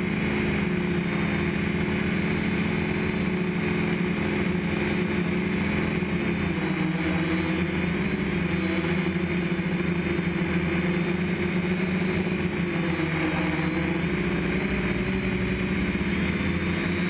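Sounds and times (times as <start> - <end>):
drone motors buzzing: 0.0 - 17.0
thin high whine: 0.0 - 17.0.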